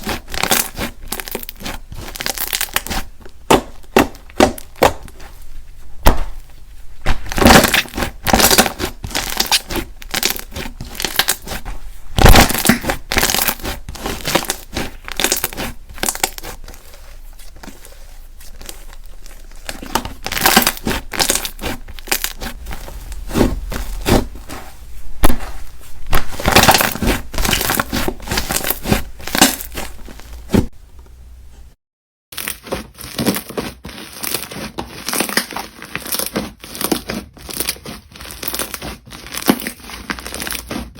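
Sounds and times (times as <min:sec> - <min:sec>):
slime crackling and popping: 0:00.0 - 0:30.7.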